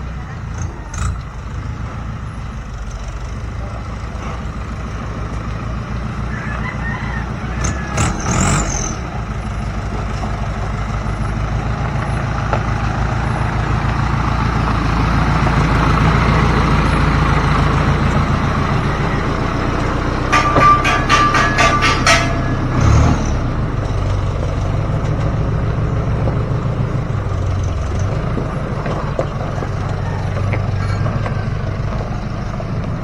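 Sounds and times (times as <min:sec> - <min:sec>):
heavy diesel engine running: 0:00.0 - 0:33.0
sharp clatters: 0:19.4 - 0:24.1.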